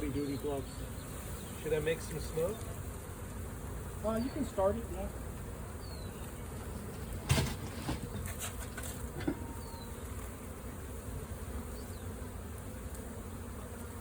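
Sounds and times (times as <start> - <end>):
bee swarm buzzing: 0.0 - 14.0
sharp knocks: 7.2 - 8.3.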